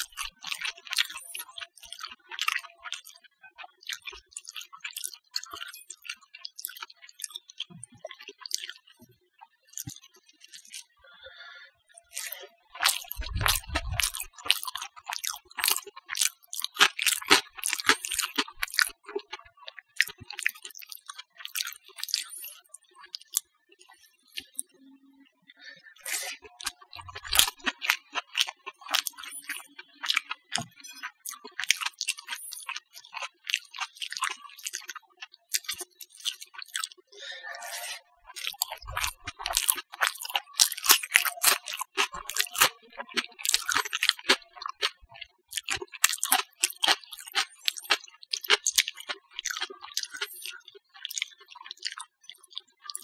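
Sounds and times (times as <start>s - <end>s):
chewing food: 0.0s - 24.8s, 25.4s - 53.0s
wet mouth clicks: 3.8s - 8.9s, 9.8s - 10.8s, 12.0s - 23.4s, 24.3s - 24.7s, 26.0s - 37.0s, 37.7s - 53.0s.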